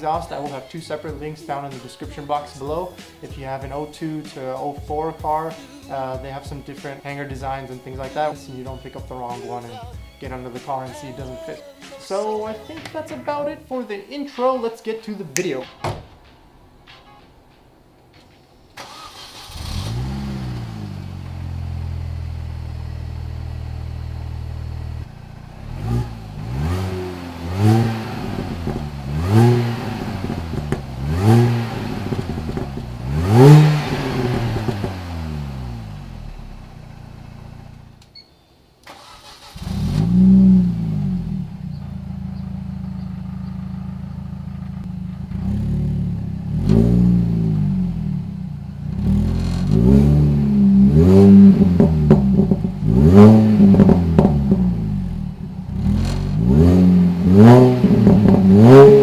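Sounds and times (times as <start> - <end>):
car engine starting and revving: 18.4 - 38.1, 38.8 - 59.0.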